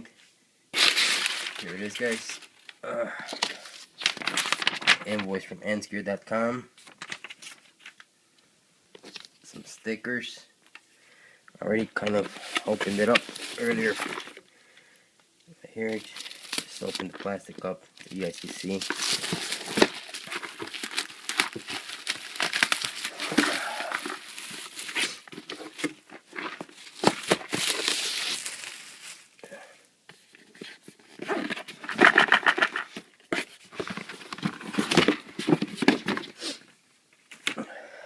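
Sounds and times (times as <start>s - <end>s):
plastic wrapping crinkling: 0.8s - 5.4s, 6.8s - 8.1s, 12.0s - 14.4s, 15.8s - 29.4s.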